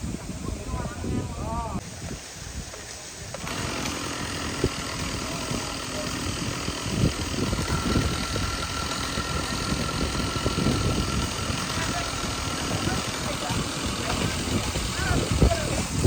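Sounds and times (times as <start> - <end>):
engine idling roughly: 3.4 - 16.0.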